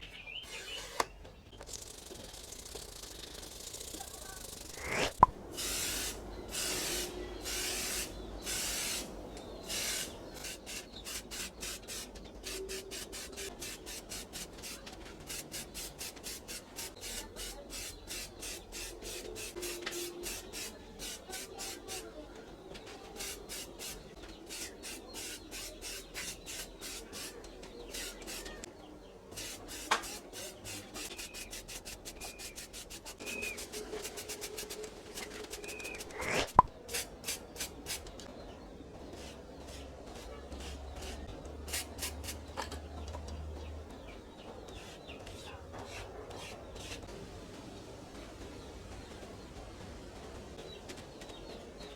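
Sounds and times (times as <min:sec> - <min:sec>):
hand tool rasping: 0:01.7 - 0:09.1, 0:09.7 - 0:22.1, 0:23.1 - 0:28.7, 0:29.3 - 0:37.8.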